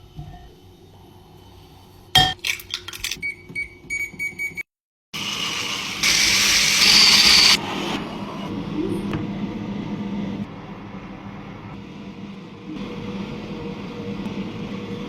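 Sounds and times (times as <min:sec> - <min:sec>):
kitchenware clinking: 0:02.2 - 0:03.3
kitchen appliance whirring: 0:05.2 - 0:08.4.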